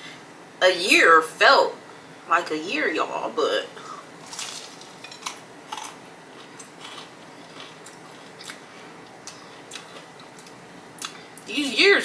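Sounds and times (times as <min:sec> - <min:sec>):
chewing crispy chicken crunches: 0:04.2 - 0:11.2.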